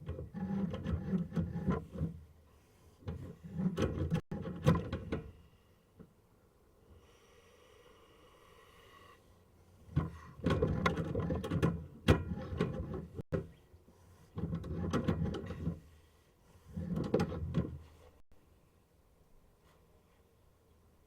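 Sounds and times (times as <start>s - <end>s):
cable scraping inside drain pipe: 0.0s - 2.3s, 3.0s - 4.9s, 9.9s - 13.4s, 14.2s - 15.9s, 16.6s - 18.2s.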